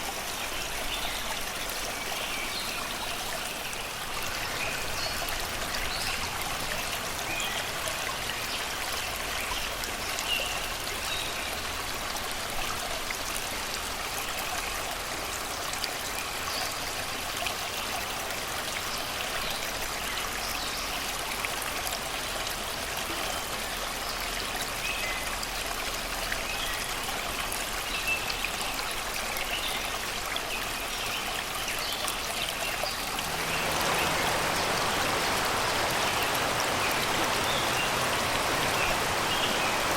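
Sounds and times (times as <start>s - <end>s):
faint birdsong: 0.0s - 8.7s, 27.8s - 39.9s
river running over rocks: 0.0s - 24.8s, 25.4s - 39.9s.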